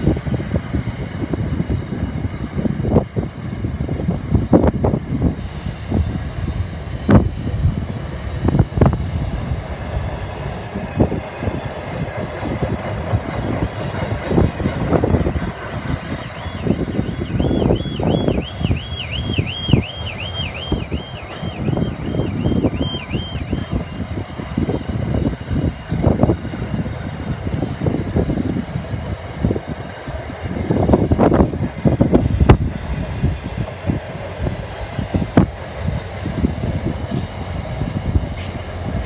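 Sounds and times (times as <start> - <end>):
freight train rumbling past: 0.0 - 39.0
train wheels clacking on rail joints: 3.8 - 39.0
car alarm warbling: 16.3 - 24.0.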